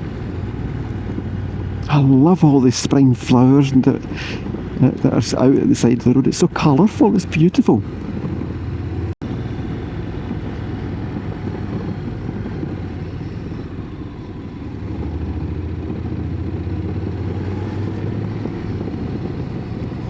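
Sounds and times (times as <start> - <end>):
rush of air and road noise: 0.0 - 20.0
motorcycle engine running: 7.0 - 20.0.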